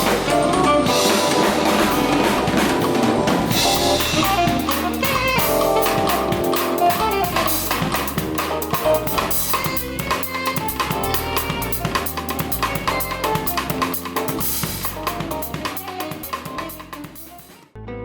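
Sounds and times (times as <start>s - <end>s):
drum kit steady beat: 0.0s - 17.7s
band music: 0.0s - 17.8s.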